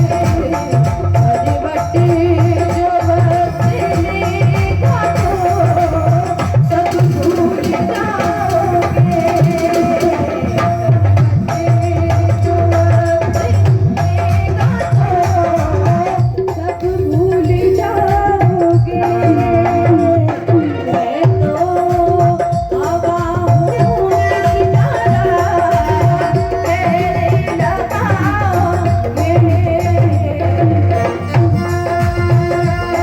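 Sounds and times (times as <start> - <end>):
tabla playing a steady rhythm: 0.0 - 33.0.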